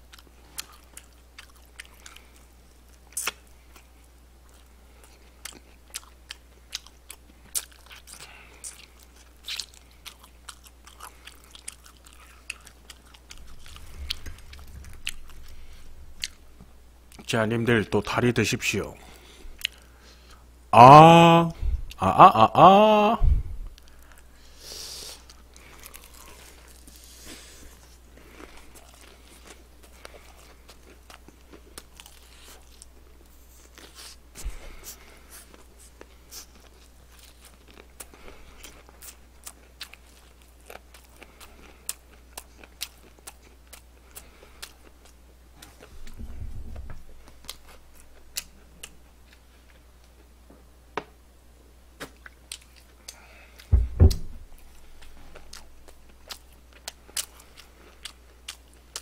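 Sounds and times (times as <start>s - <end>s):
fried chicken crust crunching: 5.0s - 15.6s.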